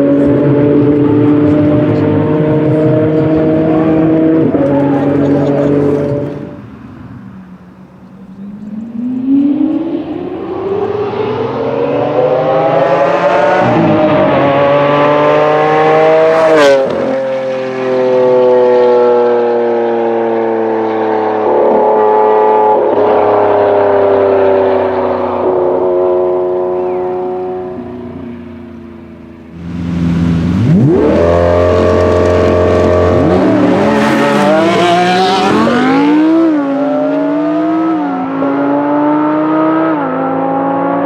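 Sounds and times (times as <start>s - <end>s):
car engine accelerating hard: 0.0s - 41.0s.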